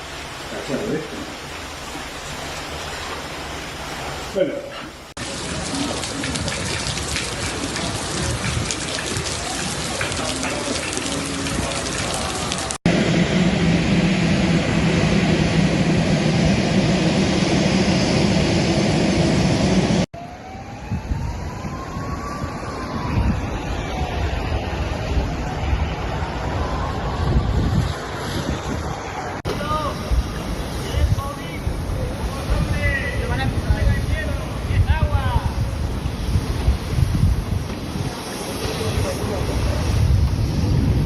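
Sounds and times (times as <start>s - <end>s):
heavy rain pouring: 0.0s - 41.0s.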